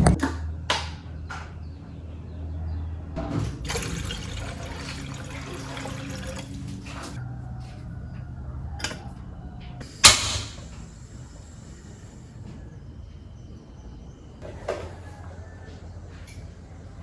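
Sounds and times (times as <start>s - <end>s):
loud sharp bang: 10.0s - 10.8s.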